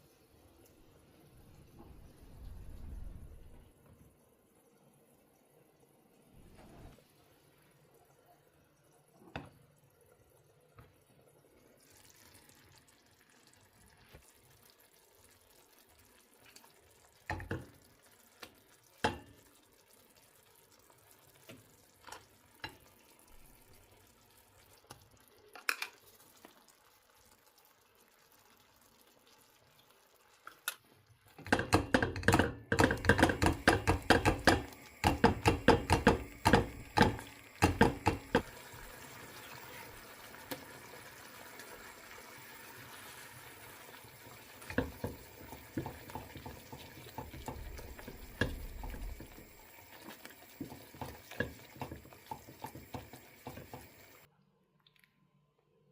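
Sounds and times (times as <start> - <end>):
water running into a sink: 11.8 - 30.7, 31.3 - 54.3.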